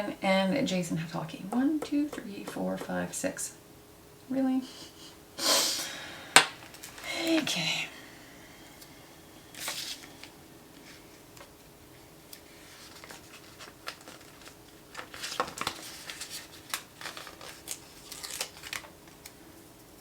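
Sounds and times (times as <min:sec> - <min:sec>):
paper and stickers handled on desk: 0:09.5 - 0:19.4.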